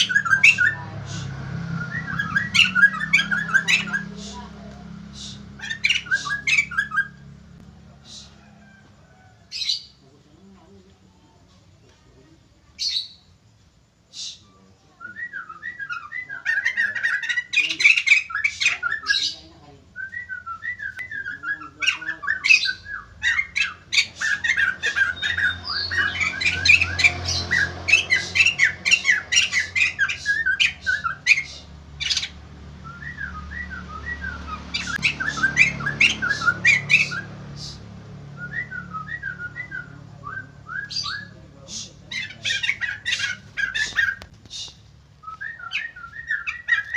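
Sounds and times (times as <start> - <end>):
bird cackling and whistling: 0.0 - 4.5, 5.1 - 10.0, 14.1 - 46.9.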